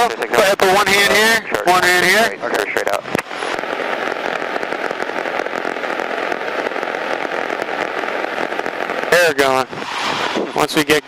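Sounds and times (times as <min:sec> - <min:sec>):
small aircraft cabin engine hiss: 0:02.4 - 0:11.0.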